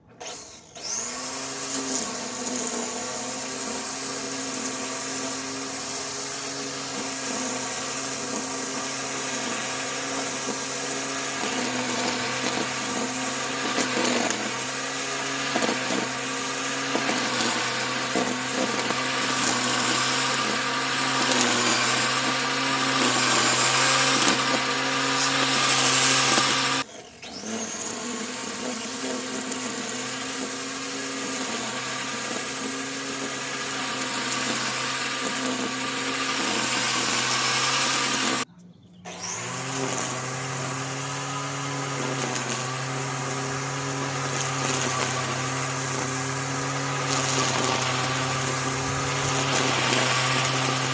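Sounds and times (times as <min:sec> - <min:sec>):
electric lawn mower running: 0:00.0 - 0:50.9.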